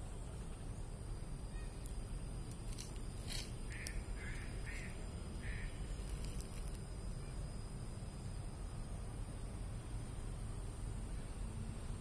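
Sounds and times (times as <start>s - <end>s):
raspy bird calls: 1.5s - 1.9s, 3.2s - 6.1s.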